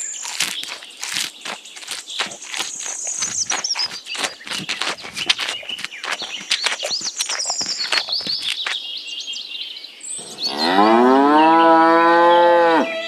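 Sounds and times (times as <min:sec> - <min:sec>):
birds chirping: 0:00.0 - 0:13.0
cow mooing: 0:10.5 - 0:13.0.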